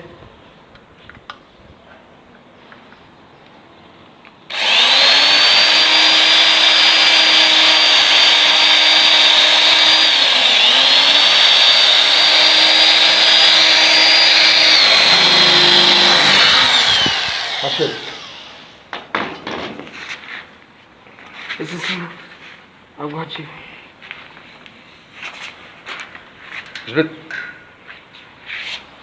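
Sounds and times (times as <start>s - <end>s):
power tool motor whine: 4.5s - 18.8s.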